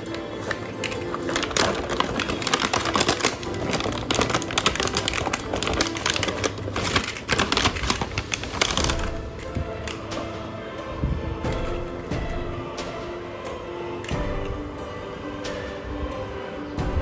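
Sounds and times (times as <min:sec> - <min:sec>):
rapid clicking and rattling: 0:00.0 - 0:10.6
background music: 0:00.0 - 0:17.0.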